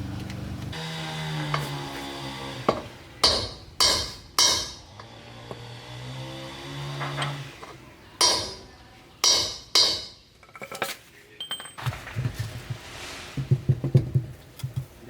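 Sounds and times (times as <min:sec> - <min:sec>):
metallic clanks with ringing: 0:03.2 - 0:05.1, 0:08.2 - 0:10.7, 0:11.4 - 0:11.9
light metal clinks: 0:11.4 - 0:11.8.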